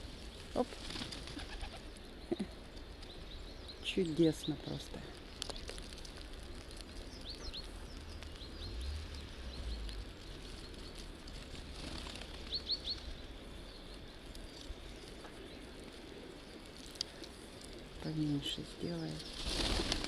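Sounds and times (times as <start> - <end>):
birds chirping: 0.0 - 20.0
low rumble: 6.1 - 14.9.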